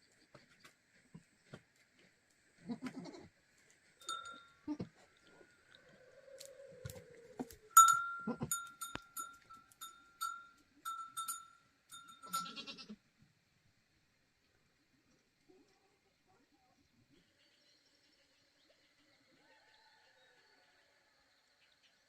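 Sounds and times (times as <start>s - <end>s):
farm animals calling: 4.0s - 11.4s, 12.1s - 13.0s.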